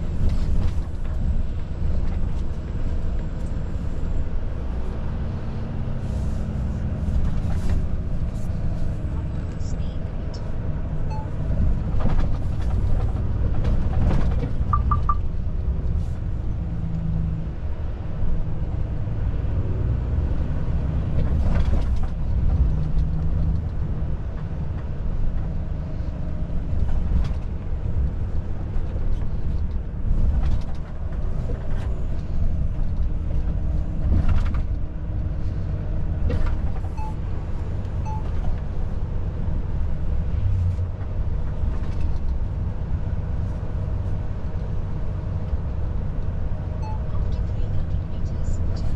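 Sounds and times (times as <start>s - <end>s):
truck engine and road rumble: 0.0s - 48.9s
short beeps: 11.1s - 11.4s, 14.7s - 15.3s, 37.0s - 37.2s, 46.8s - 47.0s.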